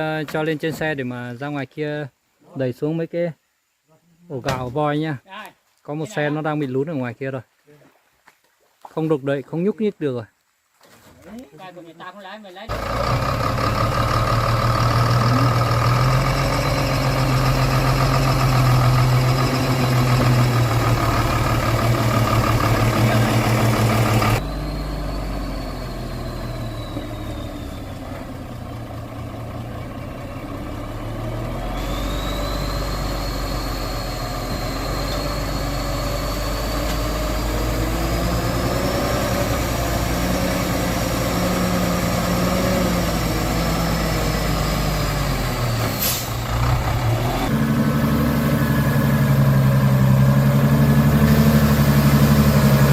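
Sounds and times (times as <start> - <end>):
heavy truck engine running: 12.7 - 52.9.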